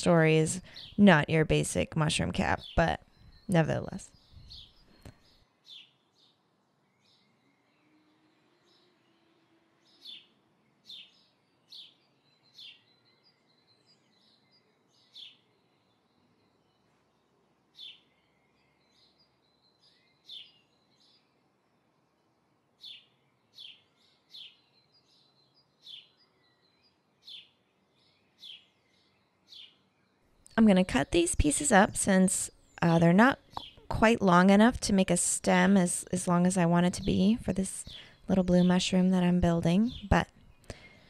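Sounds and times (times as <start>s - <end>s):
small bird chirping: 0.5s - 17.0s, 17.8s - 21.3s, 22.8s - 34.4s.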